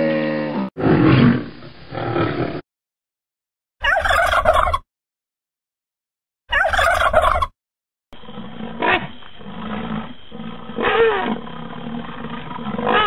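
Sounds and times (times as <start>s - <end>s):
turkey gobbling: 3.8s - 4.8s, 6.5s - 7.5s
rhinoceros calls: 8.3s - 11.5s, 12.7s - 13.0s.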